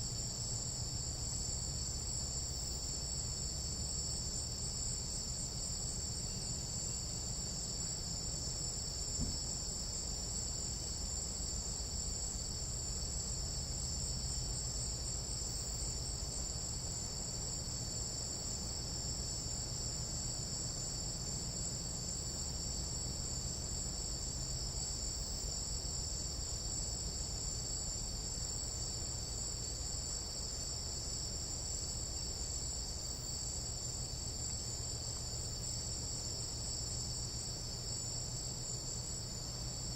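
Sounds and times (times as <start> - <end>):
insects chorus: 0.0 - 39.9
faint knock: 9.2 - 9.5.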